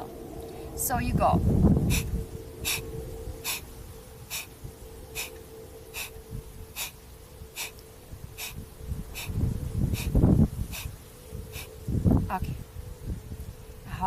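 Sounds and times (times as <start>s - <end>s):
faint steady hum: 0.0s - 14.0s
forceful exhales through nose: 1.9s - 2.8s, 3.4s - 3.6s, 8.4s - 8.6s, 9.2s - 11.7s
quiet inhales: 1.9s - 3.7s, 4.3s - 7.8s, 8.4s - 11.8s.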